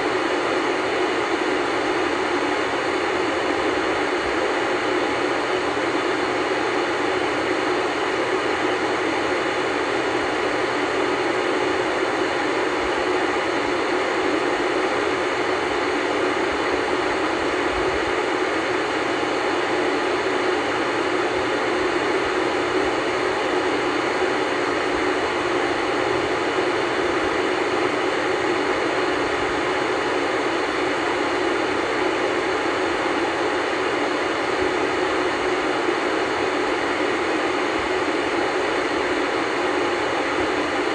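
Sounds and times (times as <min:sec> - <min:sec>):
television static hiss: 0:00.0 - 0:40.9.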